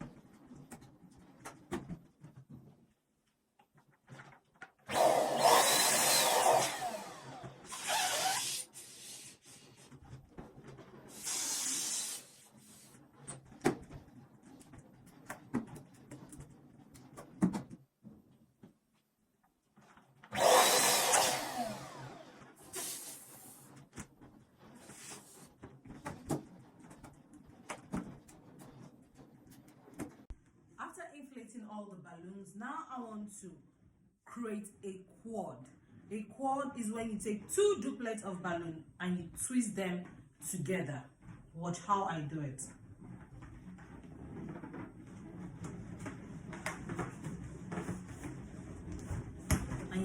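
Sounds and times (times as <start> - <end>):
electric balloon inflator blowing: 4.9 - 9.4, 11.1 - 12.5, 20.3 - 23.7
balloons rubbing and clicking: 5.7 - 18.4, 22.6 - 30.4.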